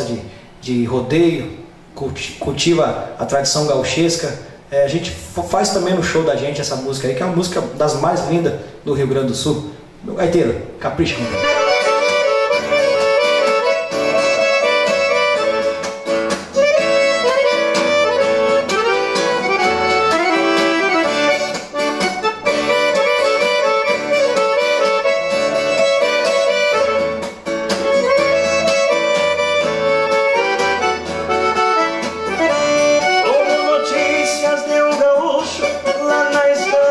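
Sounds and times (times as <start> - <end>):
rhythmic backing with bass notes: 11.0 - 36.9
accordion melody: 11.1 - 36.9.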